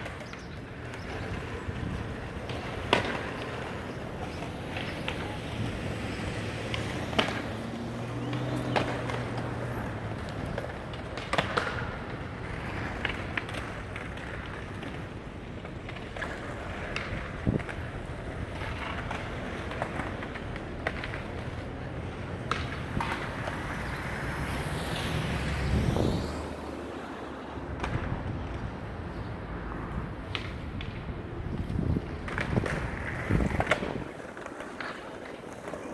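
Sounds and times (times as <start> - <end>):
traffic hum: 0.0 - 35.9
loud vehicle passing by: 2.6 - 15.0, 18.6 - 34.1.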